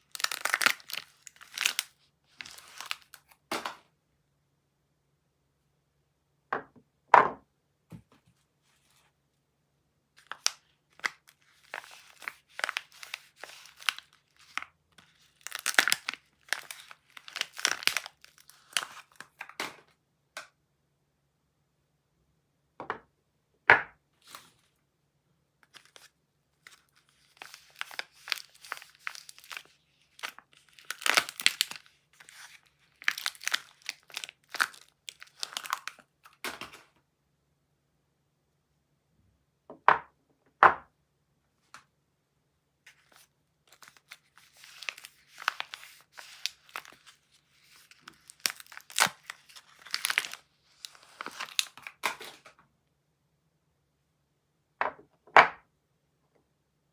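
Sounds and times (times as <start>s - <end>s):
wrapper crinkling and tearing: 0.0s - 3.7s, 10.2s - 19.8s, 25.7s - 36.8s, 42.9s - 52.5s.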